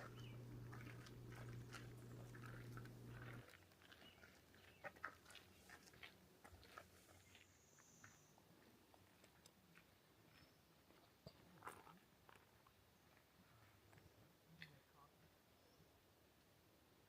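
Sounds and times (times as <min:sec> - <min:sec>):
low steady hum: 0:00.0 - 0:07.5.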